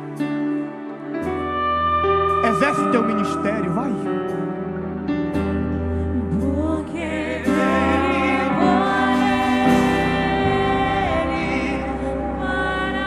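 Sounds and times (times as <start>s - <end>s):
keyboard chords and bass: 0.0s - 13.0s
person singing: 2.3s - 4.5s, 6.0s - 13.0s.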